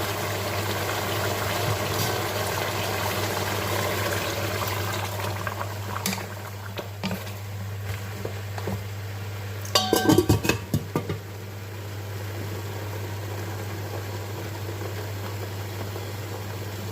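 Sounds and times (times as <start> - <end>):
metal pot and utensils clattering: 6.0 - 6.3, 9.7 - 11.2.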